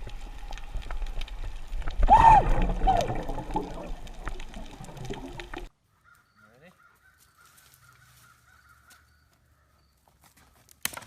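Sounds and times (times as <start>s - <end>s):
water splashing and sloshing: 0.0s - 5.7s
person crying out: 2.1s - 3.1s.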